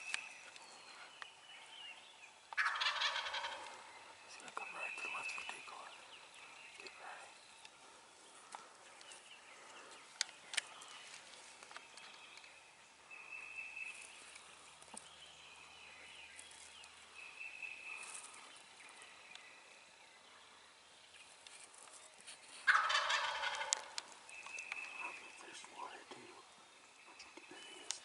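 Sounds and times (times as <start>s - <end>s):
turkey gobbling: 2.6s - 3.8s, 22.6s - 24.0s.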